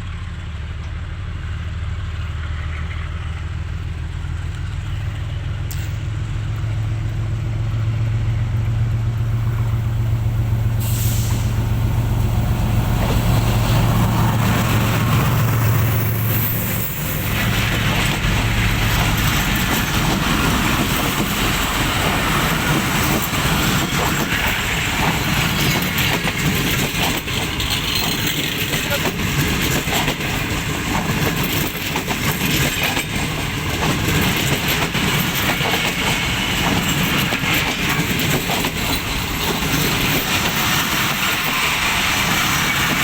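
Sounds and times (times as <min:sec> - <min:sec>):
diesel locomotive engine hum: 0:00.0 - 0:43.0
rail noise: 0:00.0 - 0:43.0
air hiss: 0:09.8 - 0:17.8.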